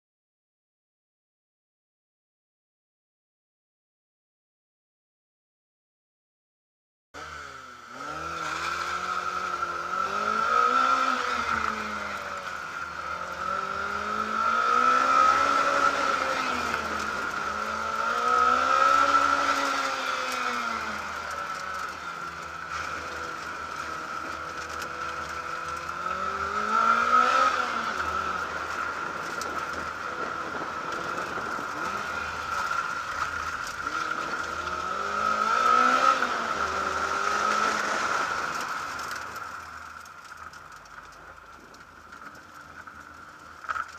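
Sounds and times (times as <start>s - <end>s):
car engine revving hard: 7.2s - 39.4s.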